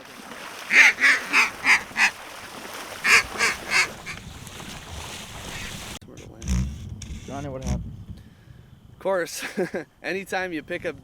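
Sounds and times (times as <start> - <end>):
duck quacking: 0.7 - 2.2, 3.0 - 4.2.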